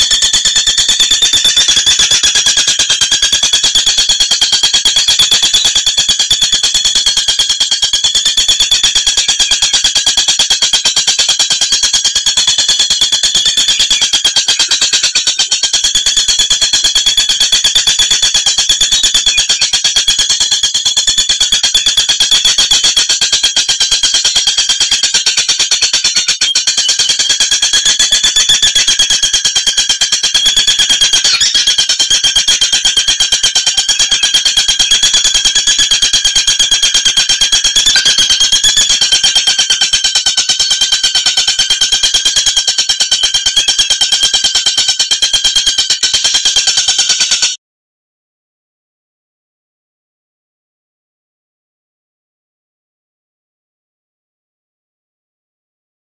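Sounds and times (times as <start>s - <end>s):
bird calling in rapid trill: 0.0s - 47.5s.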